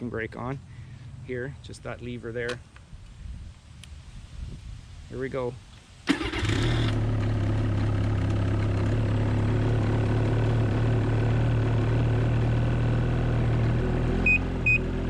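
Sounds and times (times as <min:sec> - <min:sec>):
snowmobile engine idling: 0:07.0 - 0:14.0.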